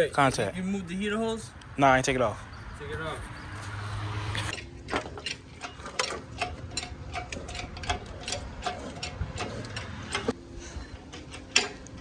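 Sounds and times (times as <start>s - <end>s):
hand tools clicking on metal: 4.5s - 10.4s, 11.1s - 12.0s.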